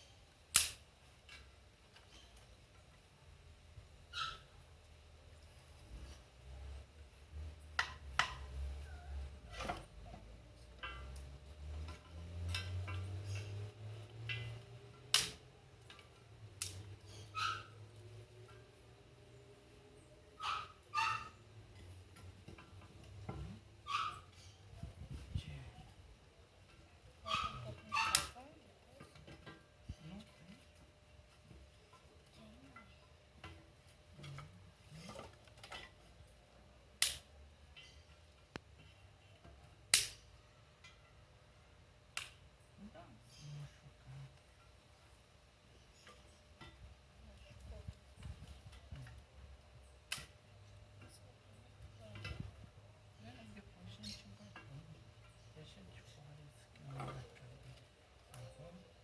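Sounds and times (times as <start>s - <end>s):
campfire crackling and popping: 0.5s - 0.8s, 37.0s - 37.2s, 39.9s - 40.2s
small wood snap: 0.5s - 0.8s, 15.1s - 16.0s, 37.0s - 37.3s, 39.9s - 40.2s, 42.1s - 42.4s
campfire burning: 15.1s - 16.8s, 37.0s - 37.2s, 39.9s - 40.2s.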